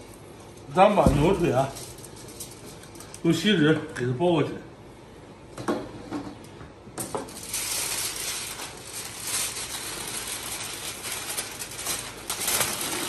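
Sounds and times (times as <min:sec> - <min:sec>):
aluminium foil crinkling: 0:00.0 - 0:03.4, 0:07.0 - 0:13.0.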